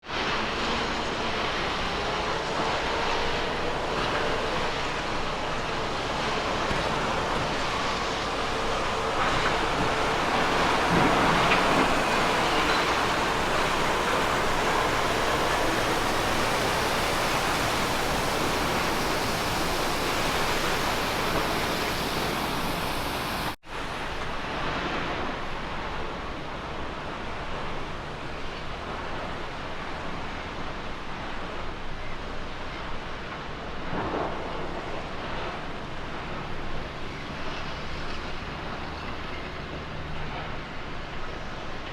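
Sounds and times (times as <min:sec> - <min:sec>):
tyre and trailer noise: 0:00.1 - 0:23.6
faint gliding whine: 0:01.0 - 0:23.6
wind on microphone: 0:02.0 - 0:23.6
truck engine running: 0:04.0 - 0:23.6.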